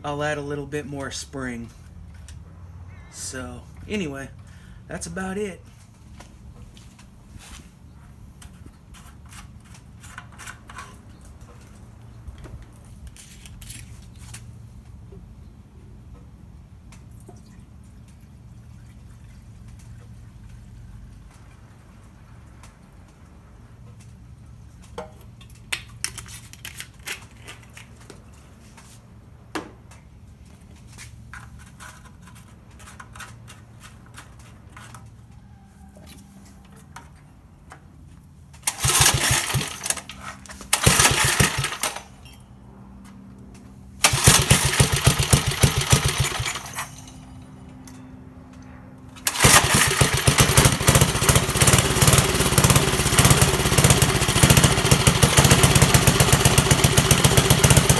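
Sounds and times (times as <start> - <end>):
small engine starting and running: 38.6 - 42.4, 44.0 - 47.4, 49.2 - 57.9.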